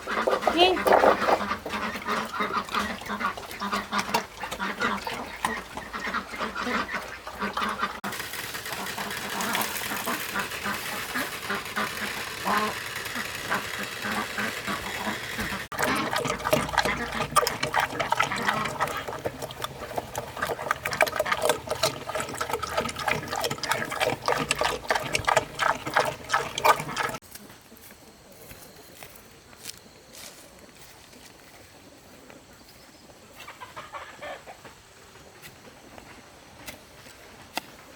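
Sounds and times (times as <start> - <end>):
farm animals calling: 0.0 - 8.0, 8.8 - 27.2
splashy water-like sounds: 14.0 - 27.2.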